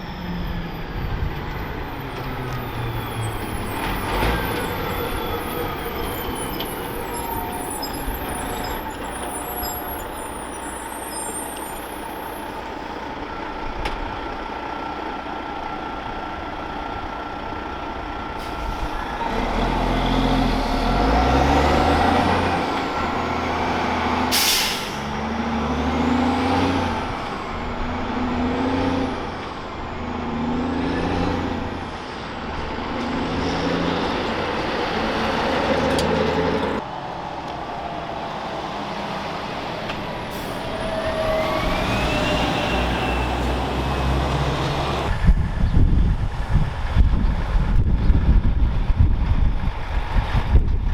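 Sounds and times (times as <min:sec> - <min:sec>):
diesel truck accelerating: 0:00.0 - 0:50.9
air hiss burst: 0:24.3 - 0:25.1.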